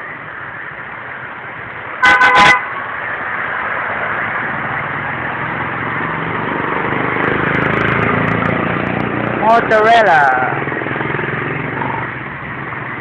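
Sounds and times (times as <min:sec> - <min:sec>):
road noise: 0:00.0 - 0:13.0
vehicle horn toots: 0:02.0 - 0:02.8.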